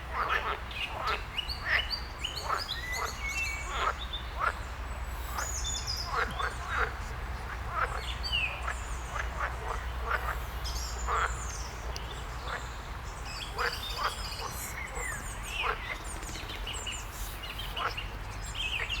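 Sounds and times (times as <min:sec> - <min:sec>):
frogs croaking: 0:00.2 - 0:04.7, 0:05.3 - 0:16.4
small birds chirping and trilling: 0:07.8 - 0:19.0.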